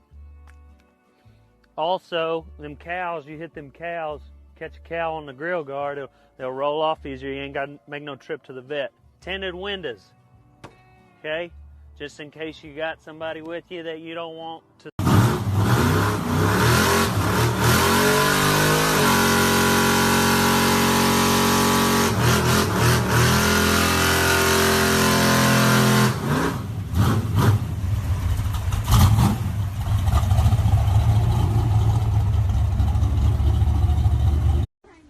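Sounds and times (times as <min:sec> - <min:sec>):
diesel engine revving: 0:15.0 - 0:34.7.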